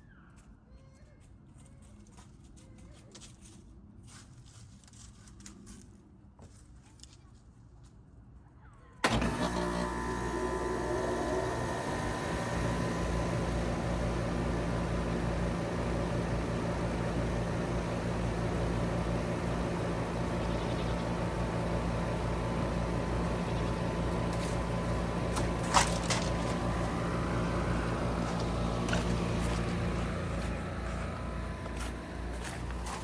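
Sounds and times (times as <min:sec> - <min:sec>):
heat pump humming: 0:09.0 - 0:33.0.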